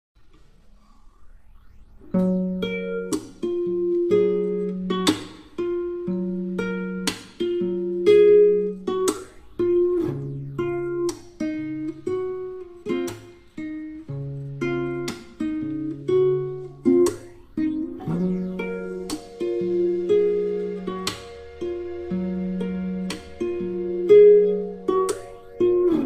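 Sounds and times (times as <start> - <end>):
acoustic guitar music: 2.1 - 26.0
bass line: 17.1 - 26.0.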